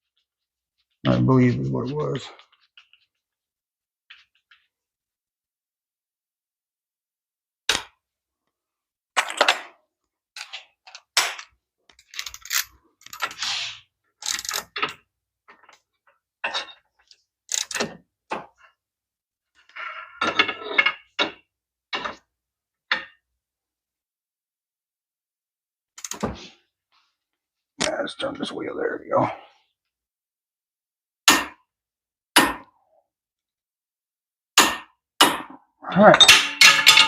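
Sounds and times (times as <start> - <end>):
metal tools knocking and clinking: 36.1 - 37.0.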